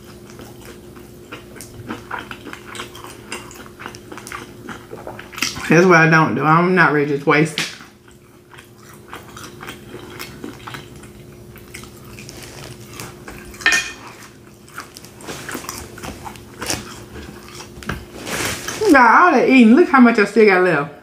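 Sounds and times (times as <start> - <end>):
person chewing: 0.0 - 5.7, 7.8 - 18.8.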